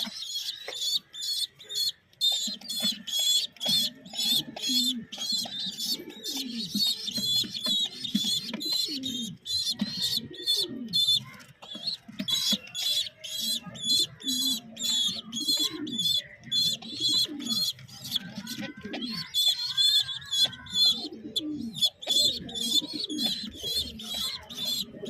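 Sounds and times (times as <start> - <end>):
pigeon squabs begging squeaks: 0.0 - 25.0.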